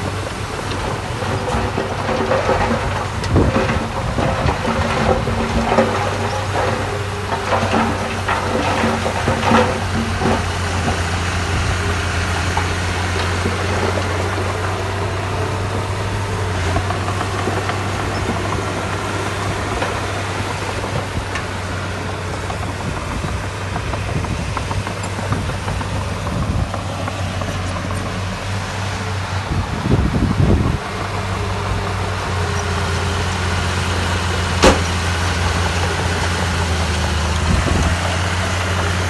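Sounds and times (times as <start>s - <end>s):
heavy diesel engine running: 0.0s - 39.0s
knocks: 34.6s - 35.0s.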